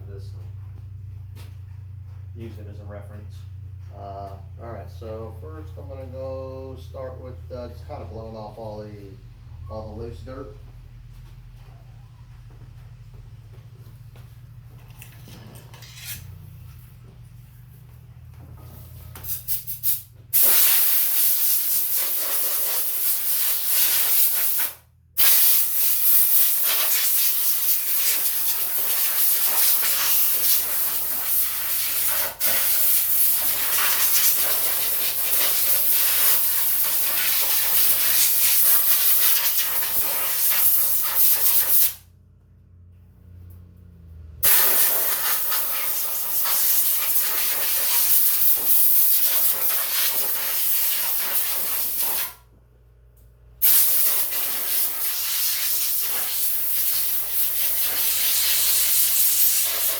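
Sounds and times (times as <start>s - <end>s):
compressed air hissing from blow gun: 19.2s - 42.0s, 44.4s - 52.4s, 53.6s - 59.9s.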